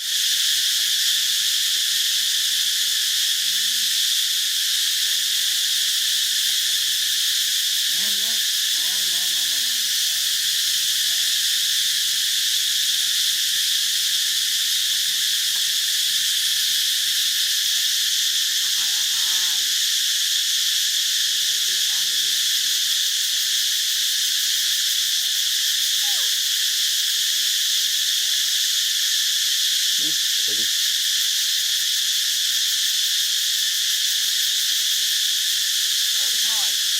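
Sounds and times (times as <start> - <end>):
insects droning: 0.0 - 36.9
faint wavering calls: 7.8 - 11.4, 26.0 - 26.4.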